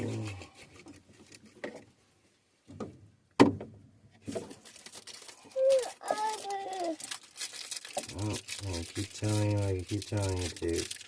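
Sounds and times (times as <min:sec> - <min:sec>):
knocks and clunks: 0:02.6 - 0:04.5.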